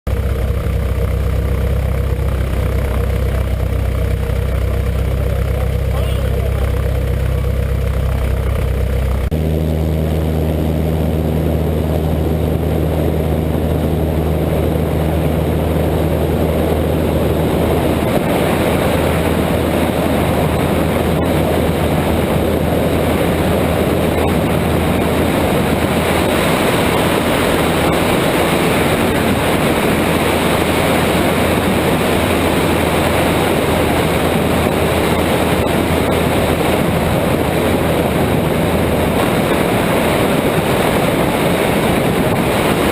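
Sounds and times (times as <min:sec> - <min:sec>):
light aircraft engine and propeller: 0:00.1 - 0:42.9.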